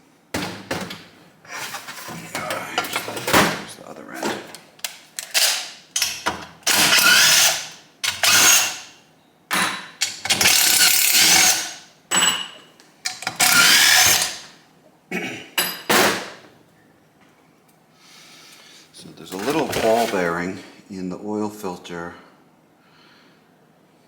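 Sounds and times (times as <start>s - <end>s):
power tool motor whining: 6.7s - 8.8s, 13.4s - 14.4s.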